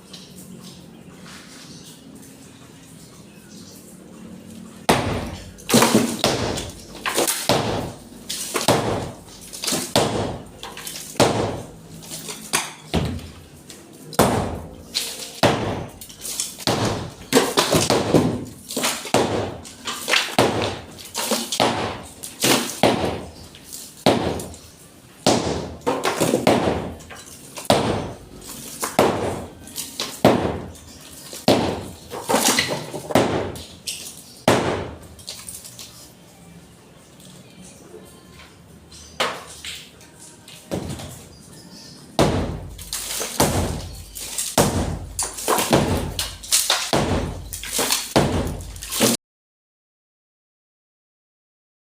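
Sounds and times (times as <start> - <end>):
breaking material rattling: 4.9 - 35.8, 42.2 - 49.2
hammer blows on masonry wall: 7.4 - 10.6, 11.2 - 11.8, 14.2 - 16.0, 27.7 - 28.3, 43.4 - 49.1.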